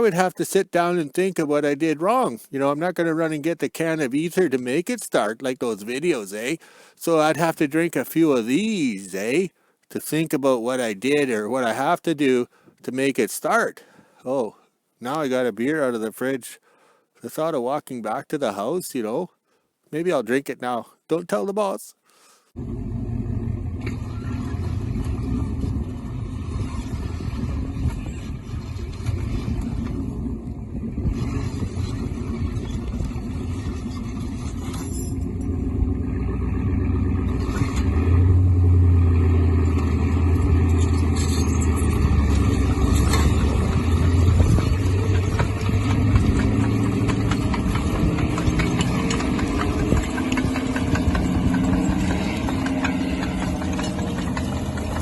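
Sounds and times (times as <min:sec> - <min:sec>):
tractor engine running: 0:22.6 - 0:55.0.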